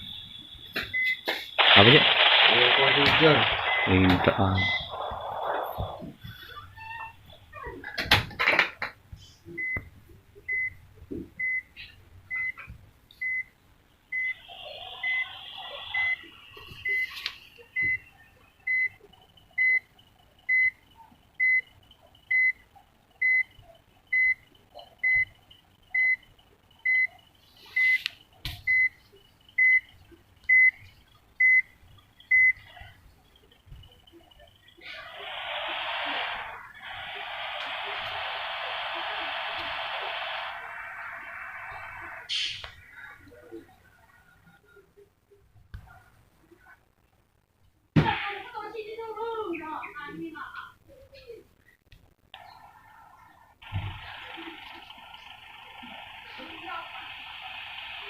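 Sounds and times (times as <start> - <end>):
electronic beeper beeping: 0.0 - 6.0, 14.2 - 17.2.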